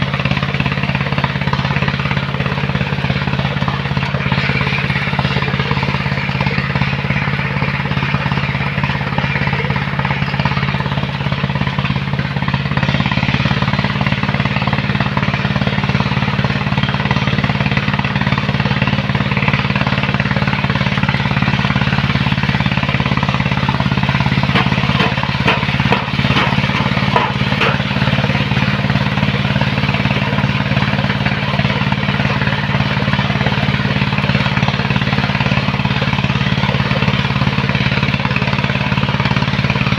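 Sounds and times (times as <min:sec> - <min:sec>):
heavy machine engine rattling hum: 0:00.0 - 0:39.9
sharp knocks: 0:24.5 - 0:27.9.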